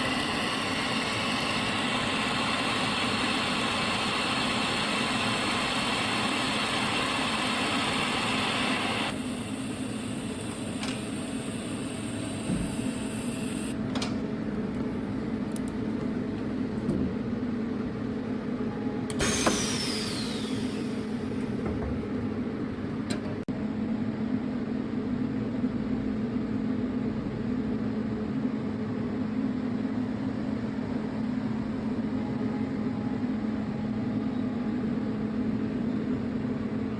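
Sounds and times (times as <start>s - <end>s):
welding machine hum: 0.0s - 16.9s, 19.1s - 21.6s.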